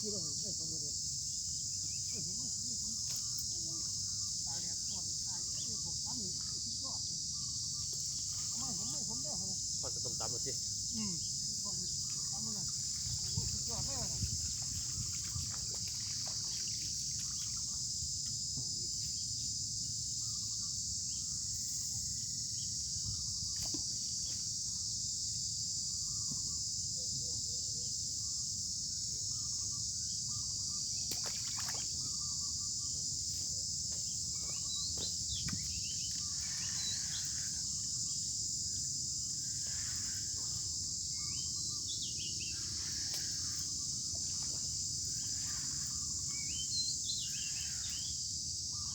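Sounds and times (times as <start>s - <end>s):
shrill insect chorus: 0.0s - 48.9s
faint bird chirps: 34.1s - 38.2s, 38.8s - 48.9s.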